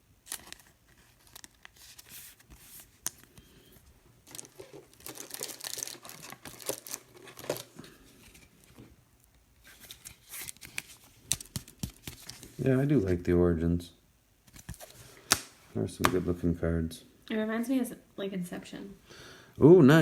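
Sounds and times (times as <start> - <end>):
card wrappers tearing and crinkling: 0.2 - 3.4, 4.2 - 8.5, 9.6 - 12.8.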